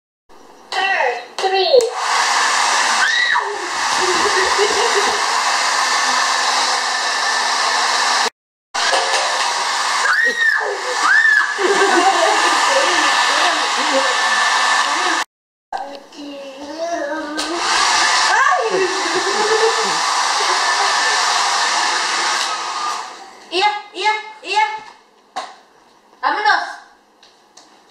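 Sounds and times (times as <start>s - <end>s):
hair dryer blowing: 1.8s - 15.3s, 17.4s - 23.5s.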